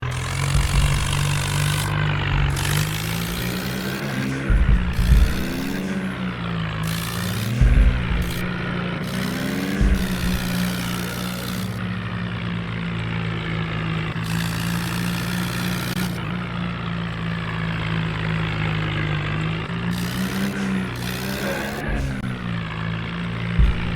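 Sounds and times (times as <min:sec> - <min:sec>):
tractor diesel engine running: 0:00.0 - 0:23.9
low thump: 0:00.4 - 0:03.4, 0:04.4 - 0:05.8, 0:07.6 - 0:08.7, 0:23.6 - 0:23.9.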